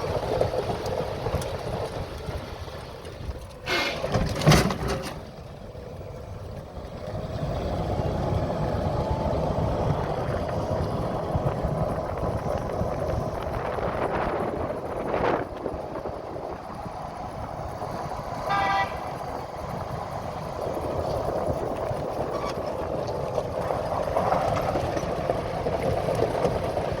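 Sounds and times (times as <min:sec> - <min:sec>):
vehicle engine running: 0:00.0 - 0:27.0
short horn toot: 0:03.6 - 0:04.1, 0:18.5 - 0:19.2.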